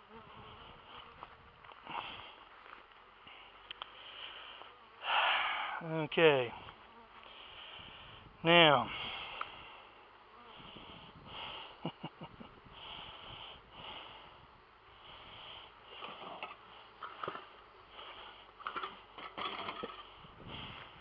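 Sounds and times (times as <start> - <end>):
faint breathing: 0.2 - 5.9, 6.6 - 11.8, 12.6 - 19.1, 20.0 - 21.0.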